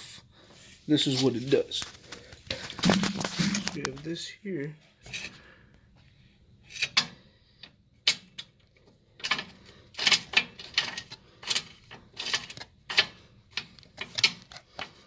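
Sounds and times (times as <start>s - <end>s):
metallic clicks and scrapes: 5.0s - 5.4s, 6.6s - 15.0s.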